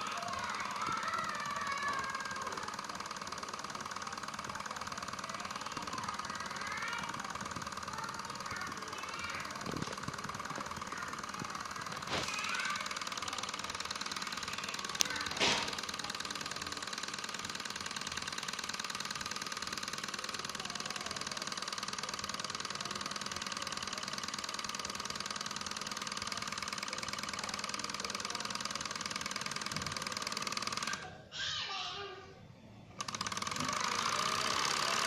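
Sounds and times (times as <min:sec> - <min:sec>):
sharp click: 0:15.0 - 0:15.9.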